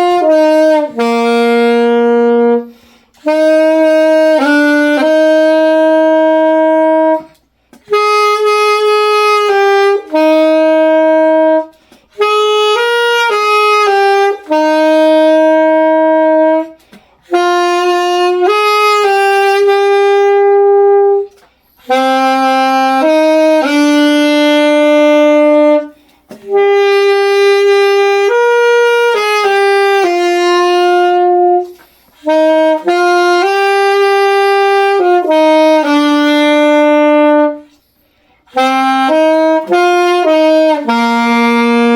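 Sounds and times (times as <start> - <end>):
solo saxophone melody: 0.0 - 41.9.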